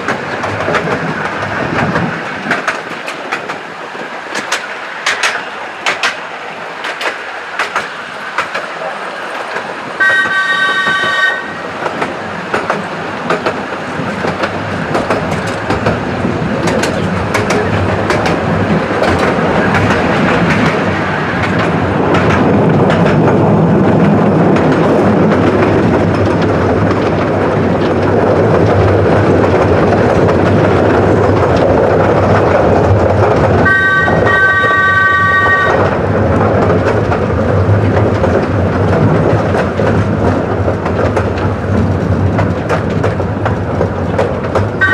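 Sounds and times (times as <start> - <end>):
train wheels clattering over rails: 0.0 - 44.9
three-note locomotive whistle: 10.0 - 11.6, 33.6 - 35.9.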